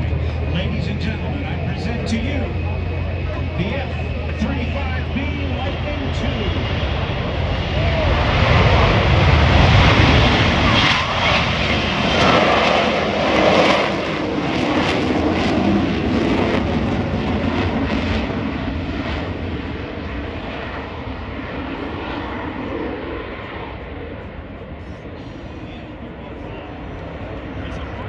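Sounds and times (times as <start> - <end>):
jet engine running: 0.0 - 28.0.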